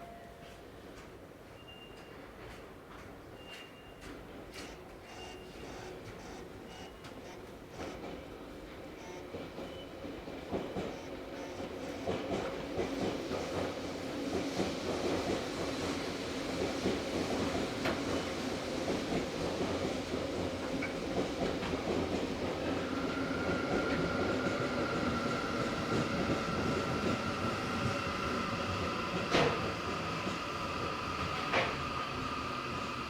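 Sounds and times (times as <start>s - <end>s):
train equipment and ventilation hum: 0.0s - 33.0s.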